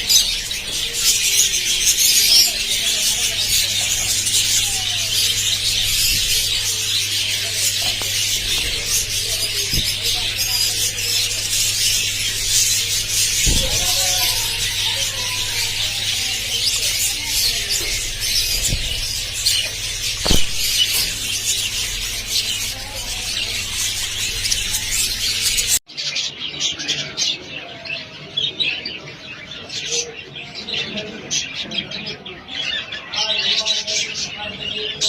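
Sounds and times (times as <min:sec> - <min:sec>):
budgerigars chirping: 0:00.0 - 0:25.8.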